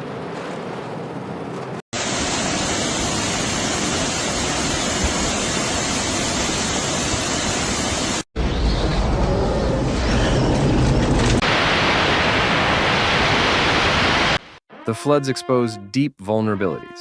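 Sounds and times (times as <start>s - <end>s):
floodwater rushing: 11.4s - 14.6s.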